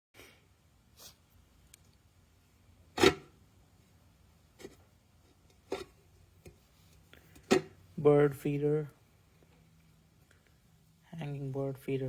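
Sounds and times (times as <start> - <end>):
rubbing and knocking handling noises: 3.0 - 3.3, 4.5 - 7.8.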